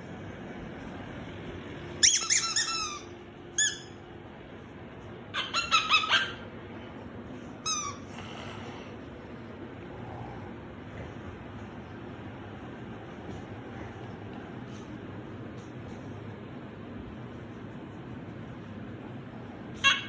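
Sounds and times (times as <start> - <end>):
squeaky toy squeaking: 2.0 - 4.0, 7.6 - 8.0.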